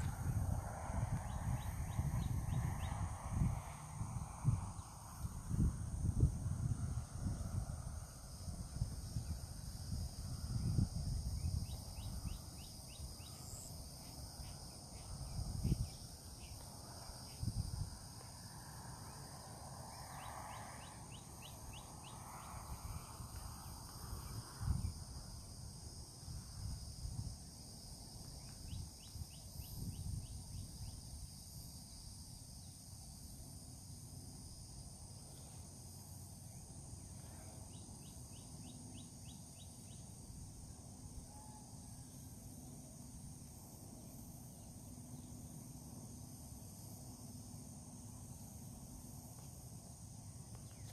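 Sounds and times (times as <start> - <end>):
insects droning: 0.0 - 50.9.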